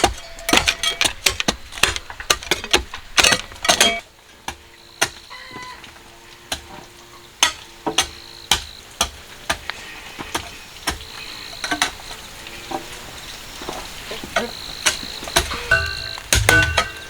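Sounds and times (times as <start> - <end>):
sharp knocks and clicks: 0.0 - 5.3, 14.4 - 17.0
gritty scraping hiss: 0.0 - 17.0.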